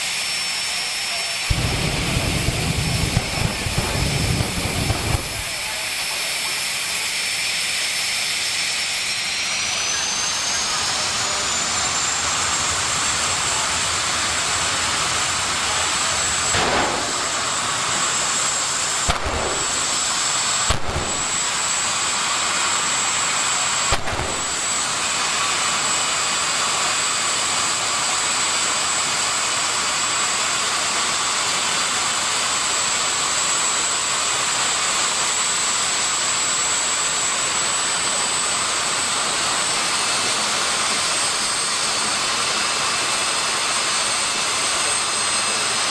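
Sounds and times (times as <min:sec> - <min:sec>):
jet engine running: 0:00.0 - 0:45.9
short sharp cracks: 0:16.6 - 0:17.5, 0:19.1 - 0:20.1, 0:20.7 - 0:21.3.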